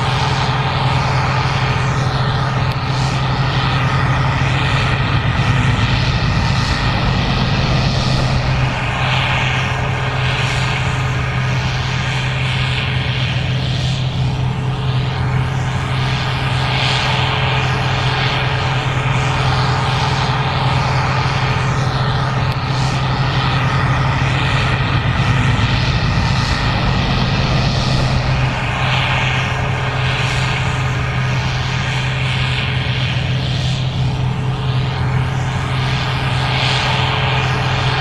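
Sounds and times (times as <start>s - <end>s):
combine harvester engine drone: 0.0s - 38.0s.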